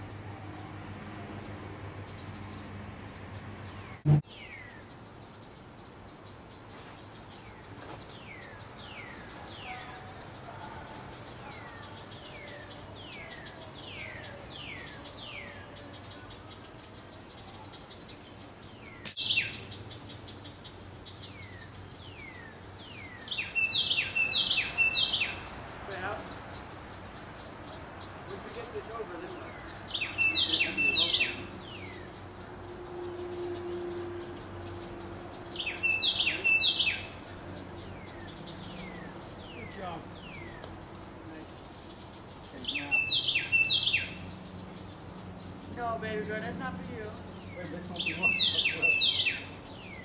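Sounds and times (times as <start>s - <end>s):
birds chirping: 0.0s - 50.0s
harsh bird calls: 0.0s - 50.0s
sharp click: 19.0s - 19.2s.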